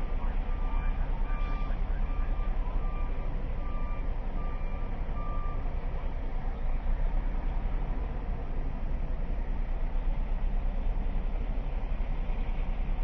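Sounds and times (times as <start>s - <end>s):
low engine rumble: 0.0s - 13.0s
reversing alarm beeping: 0.4s - 5.6s.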